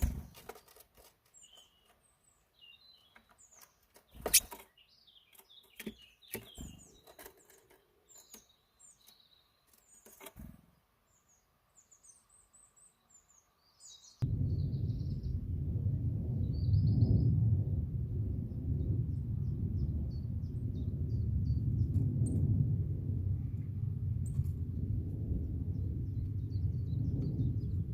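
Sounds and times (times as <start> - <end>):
small birds chirping: 0.0 - 15.5, 16.4 - 17.4, 18.4 - 22.4, 23.6 - 27.9
loud low rumble: 14.2 - 27.9.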